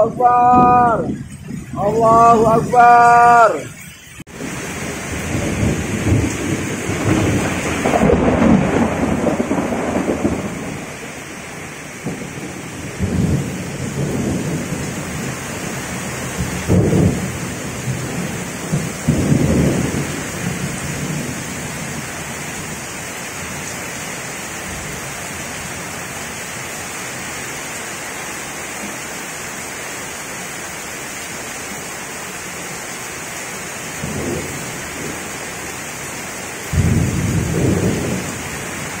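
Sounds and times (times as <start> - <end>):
thunder rumbling: 0.0 - 22.9, 34.0 - 35.4, 36.7 - 39.0
heavy rain: 0.0 - 39.0.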